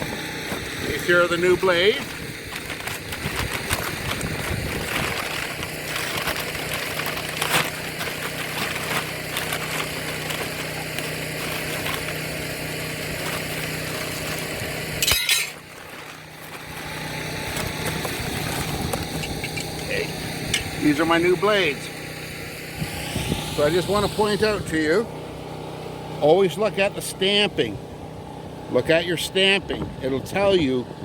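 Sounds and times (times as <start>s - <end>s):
metal clatter: 13.2s - 16.6s
metal blades clinking: 15.0s - 15.6s.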